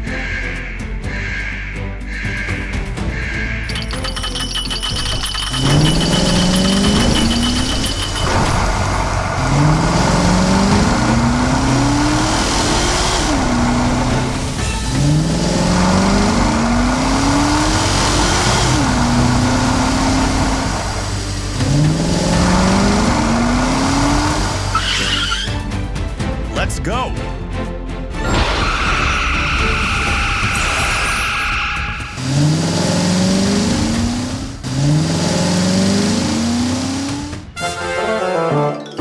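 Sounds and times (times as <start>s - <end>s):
vehicle engine revving: 3.7s - 25.6s, 32.0s - 37.6s.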